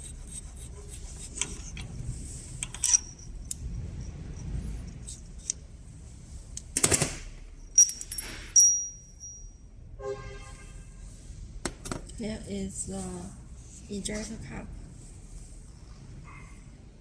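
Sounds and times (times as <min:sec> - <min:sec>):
metal parts clinking on a bench: 0:01.4 - 0:05.6, 0:07.7 - 0:09.4.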